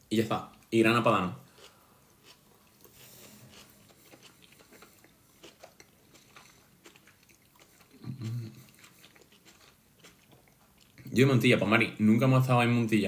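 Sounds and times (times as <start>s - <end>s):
faint chewing: 1.4s - 11.2s.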